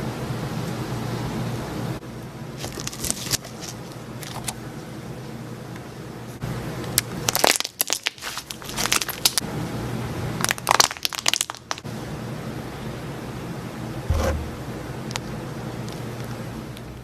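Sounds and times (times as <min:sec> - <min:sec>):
slime crackling and popping: 0:07.3 - 0:09.4, 0:10.4 - 0:11.8.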